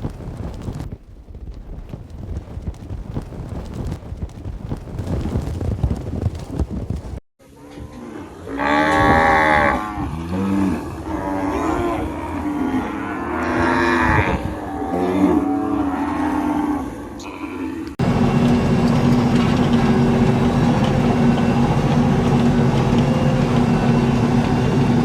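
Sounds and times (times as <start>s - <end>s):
low rumbling noise: 0.0s - 7.2s
cattle mooing: 7.5s - 18.0s.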